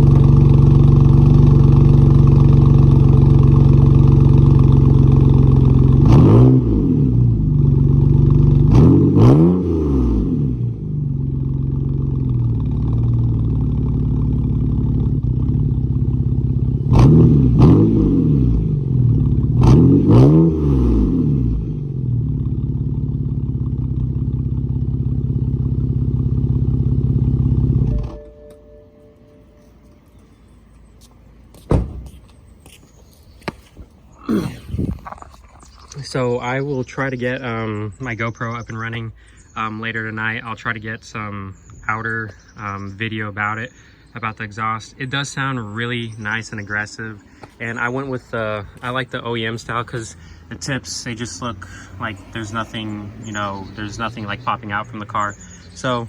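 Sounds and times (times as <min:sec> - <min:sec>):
car engine idling and revving: 0:00.0 - 0:31.0, 0:43.7 - 0:56.0.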